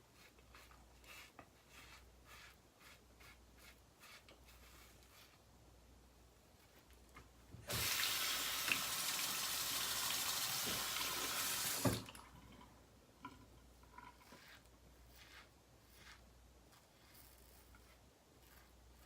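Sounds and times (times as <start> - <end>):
tap water running: 7.6 - 12.7.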